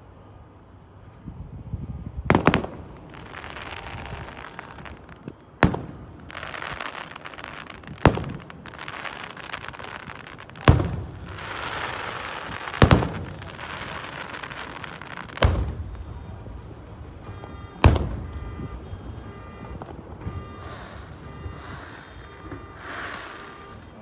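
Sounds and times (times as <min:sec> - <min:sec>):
fireworks bangs: 0:02.2 - 0:24.0
fireworks hiss: 0:02.8 - 0:18.4, 0:19.0 - 0:24.0.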